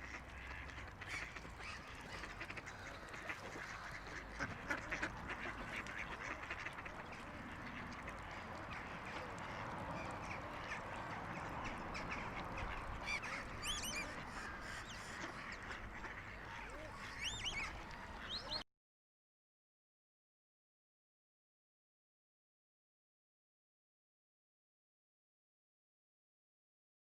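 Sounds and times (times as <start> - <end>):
wetland birds chattering: 0.0 - 18.6.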